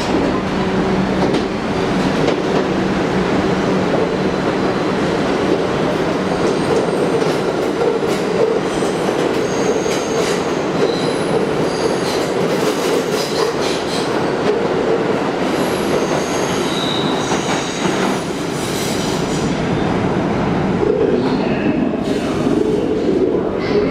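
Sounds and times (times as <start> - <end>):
subway train rumbling: 0.0 - 23.9.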